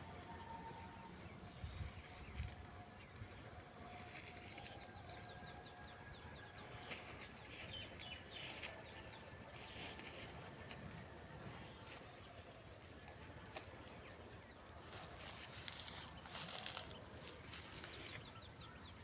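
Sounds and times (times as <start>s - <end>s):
sheep cropping grass: 0.0s - 5.6s, 6.6s - 14.1s, 14.8s - 18.5s.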